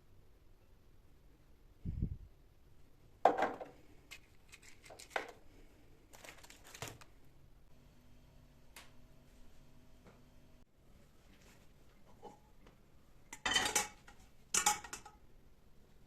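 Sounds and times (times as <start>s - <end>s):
objects being handled: 3.3s - 7.1s.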